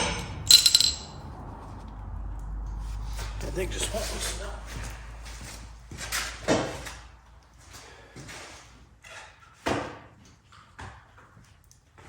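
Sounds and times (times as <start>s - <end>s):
hand tools knocking and clinking: 0.0s - 1.2s.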